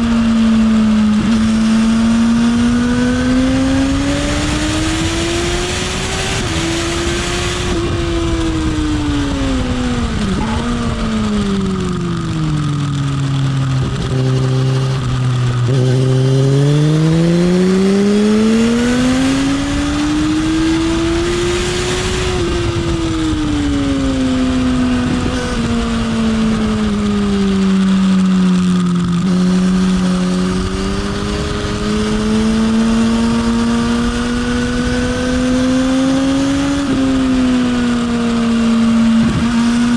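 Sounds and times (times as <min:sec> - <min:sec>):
motorcycle engine revving: 0:00.0 - 0:39.9
wind rushing past microphone: 0:01.3 - 0:12.7, 0:13.6 - 0:27.6.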